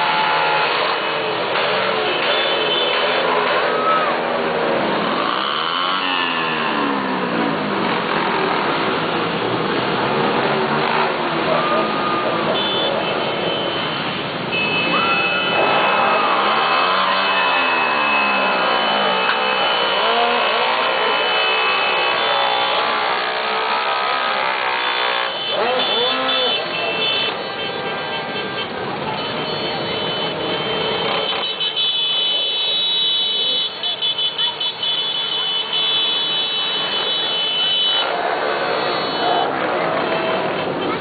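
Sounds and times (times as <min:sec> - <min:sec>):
motorcycle engines passing: 0:00.0 - 0:27.6, 0:33.2 - 0:41.0
crowd voices: 0:00.0 - 0:41.0.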